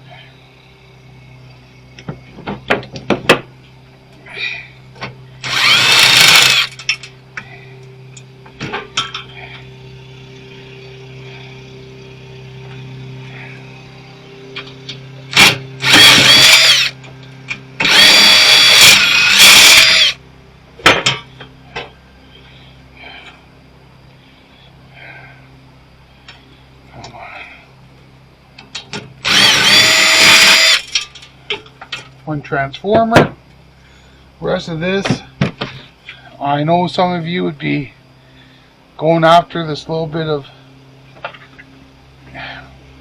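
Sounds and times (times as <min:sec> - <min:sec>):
cordless drill whining: 0:05.4 - 0:06.8, 0:15.3 - 0:17.0, 0:17.8 - 0:20.2, 0:29.2 - 0:31.0.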